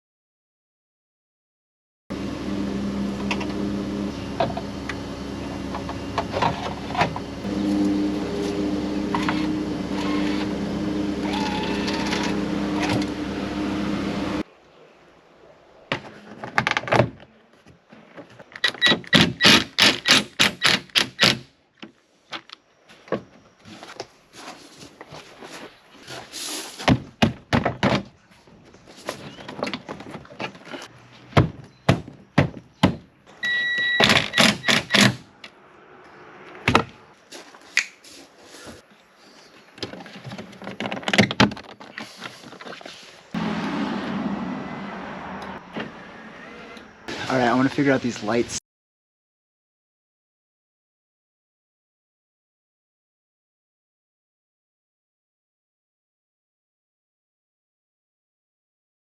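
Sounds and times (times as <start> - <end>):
car engine hum: 2.1 - 14.4, 43.4 - 47.1
road noise: 2.1 - 19.8, 28.1 - 48.6.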